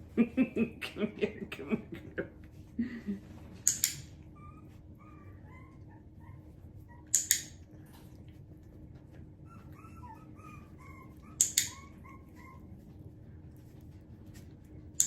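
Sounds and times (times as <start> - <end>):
training clicker clicking: 3.7 - 4.1, 7.2 - 7.6
puppy whining: 4.0 - 14.9.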